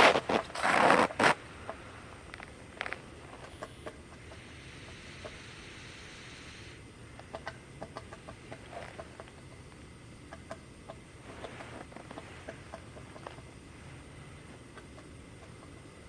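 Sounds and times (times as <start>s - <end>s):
woodpecker pecking wood: 7.1s - 13.5s.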